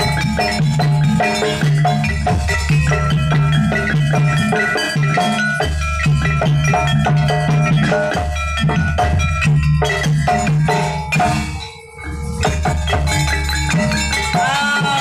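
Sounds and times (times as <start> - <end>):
drums: 0.0 - 15.0
metallophones ringing: 0.0 - 15.0
deep bass: 8.4 - 14.3.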